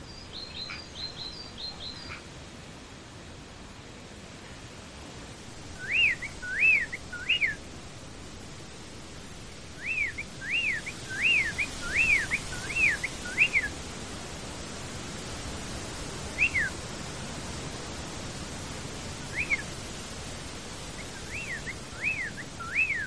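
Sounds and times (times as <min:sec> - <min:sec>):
steady background hiss: 0:00.0 - 0:23.0
songbird whistling: 0:05.8 - 0:07.6, 0:09.8 - 0:13.7, 0:16.4 - 0:16.8, 0:19.3 - 0:19.7, 0:21.0 - 0:23.0.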